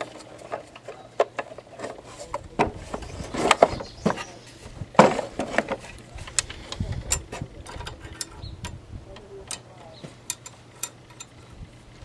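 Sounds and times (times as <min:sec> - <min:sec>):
metal parts clanking and scraping: 0:00.0 - 0:08.8, 0:09.5 - 0:11.6.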